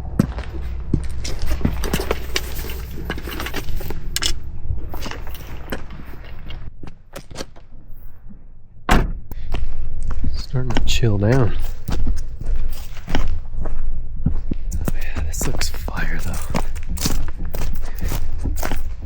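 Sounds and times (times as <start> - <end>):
low rumble: 0.0 - 19.0
rustling and handling noise: 0.5 - 8.4.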